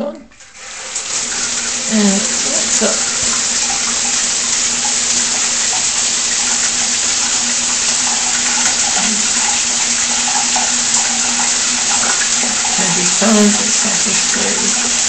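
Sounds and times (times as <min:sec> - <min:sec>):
shower spraying water: 0:00.3 - 0:15.0.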